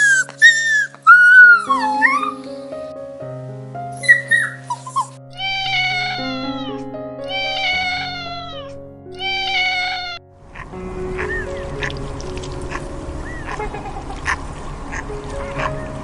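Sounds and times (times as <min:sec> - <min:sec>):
background music: 0:00.0 - 0:16.0
cat meowing: 0:04.1 - 0:10.2.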